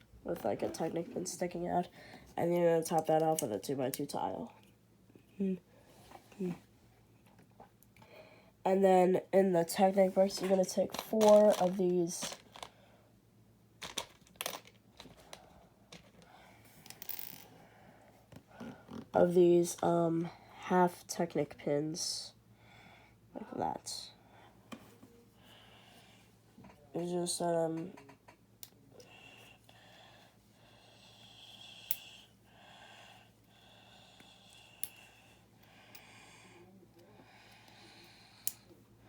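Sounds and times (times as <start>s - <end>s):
faint breathing: 8.0s - 8.6s, 22.5s - 23.3s, 25.3s - 26.4s, 29.0s - 38.8s.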